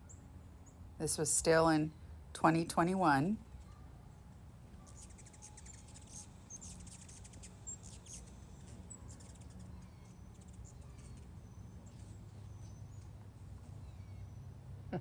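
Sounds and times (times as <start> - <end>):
low steady hum: 0.0 - 15.0
hummingbirds chittering: 4.9 - 13.1.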